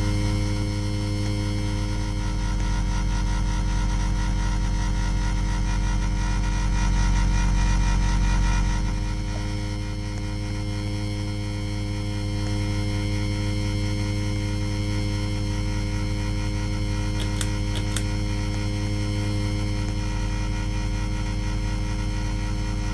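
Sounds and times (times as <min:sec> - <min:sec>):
short clicks: 0:17.2 - 0:18.1.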